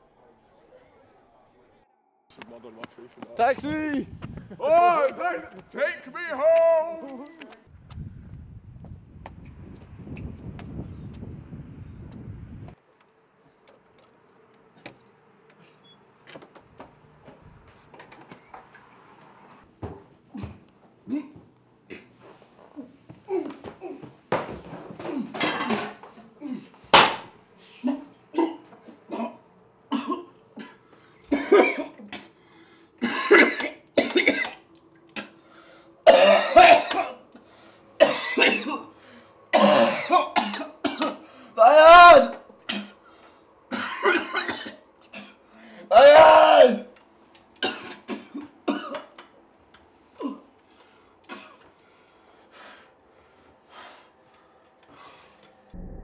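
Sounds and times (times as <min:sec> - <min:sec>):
man coughing and retching: 0:27.8 - 0:32.3, 0:33.0 - 0:34.6, 0:36.0 - 0:37.3, 0:38.0 - 0:38.9, 0:39.5 - 0:41.2, 0:43.7 - 0:45.4, 0:47.6 - 0:49.2, 0:51.3 - 0:51.6
breaths: 0:30.7 - 0:31.3, 0:32.2 - 0:33.0, 0:35.2 - 0:36.0, 0:37.3 - 0:38.0, 0:38.9 - 0:39.5, 0:41.2 - 0:41.6, 0:42.9 - 0:43.6, 0:45.3 - 0:45.9, 0:50.6 - 0:55.7
man groaning: 0:41.6 - 0:42.4.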